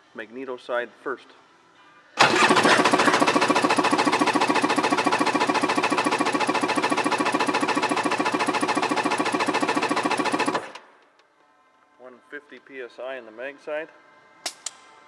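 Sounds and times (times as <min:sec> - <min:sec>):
engine cranking without firing: 0:02.2 - 0:10.8.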